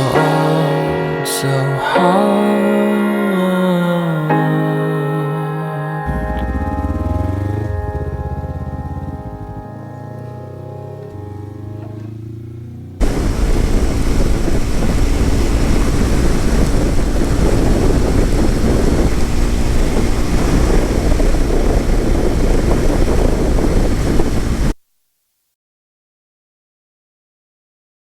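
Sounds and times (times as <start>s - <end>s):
motorcycle engine drone: 6.0s - 24.8s
wind rush: 13.0s - 24.8s.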